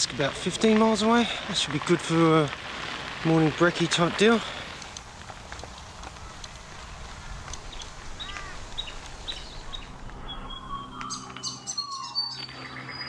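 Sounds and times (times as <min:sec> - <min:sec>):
birds chirping: 0:00.0 - 0:13.0
bird whistle and whip-crack call: 0:07.6 - 0:13.0.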